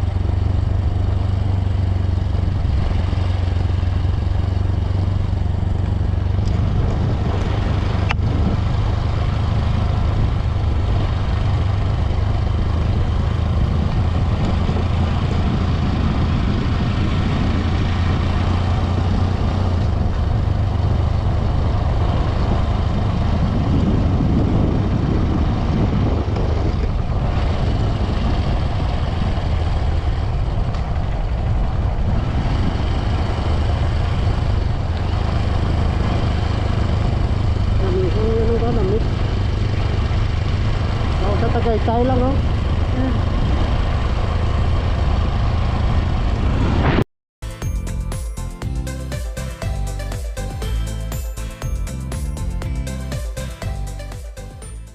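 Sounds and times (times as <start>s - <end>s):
motorcycle engine running: 0.0s - 46.5s, 47.4s - 54.9s
wind noise on microphone: 4.2s - 47.0s.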